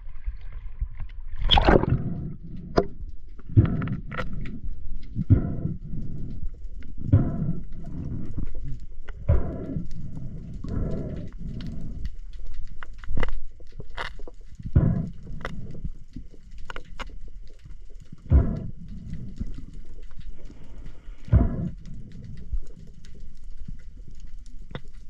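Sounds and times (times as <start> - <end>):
heavy breathing through snorkel: 3.4 - 12.3, 14.6 - 16.0, 18.1 - 23.2
small clicks and knocks: 12.6 - 14.6.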